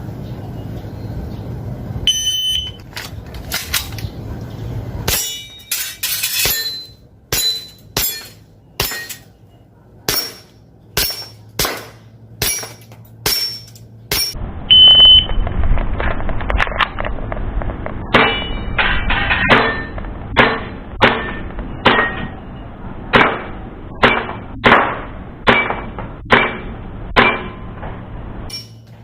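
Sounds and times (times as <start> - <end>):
high beep: 2.1 - 2.8, 14.7 - 15.4
metallic ring of hits: 5.1 - 9.4, 10.1 - 14.4, 18.1 - 29.0.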